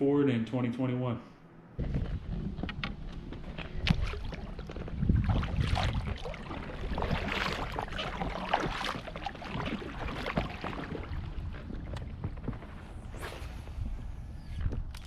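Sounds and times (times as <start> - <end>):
wind rumble on microphone: 1.8 - 15.0
water splashing: 3.2 - 15.0.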